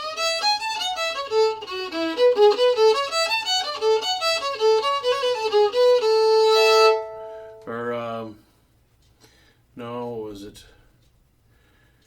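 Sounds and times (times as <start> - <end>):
solo fiddle playing: 0.0 - 7.7.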